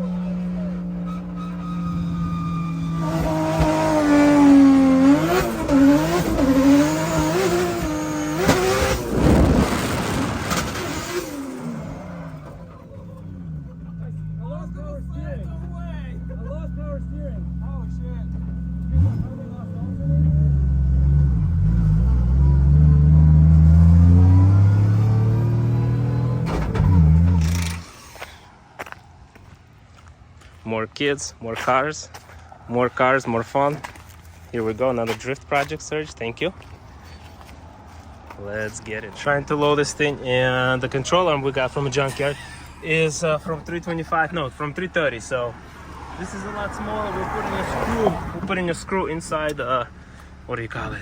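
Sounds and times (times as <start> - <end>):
car engine revving: 0.0 - 28.7, 36.6 - 51.0
car engine revving hard: 2.2 - 12.7, 18.8 - 28.3.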